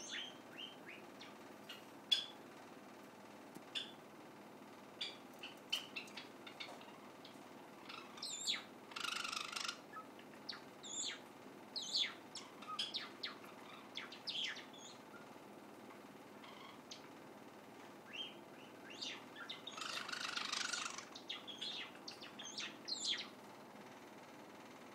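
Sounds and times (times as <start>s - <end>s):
sparrow chirping and clicking: 0.0s - 2.4s, 3.6s - 4.0s, 5.0s - 11.2s, 11.8s - 15.0s, 18.1s - 23.4s
raspy buzzy bird calls: 0.0s - 2.5s, 3.7s - 4.0s, 5.0s - 15.4s, 16.3s - 17.1s, 18.0s - 23.4s.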